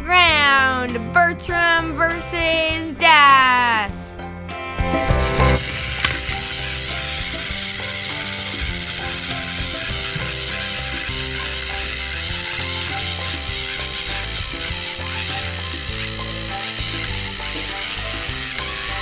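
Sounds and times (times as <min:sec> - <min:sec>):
toy train motors clattering: 0:05.4 - 0:19.0.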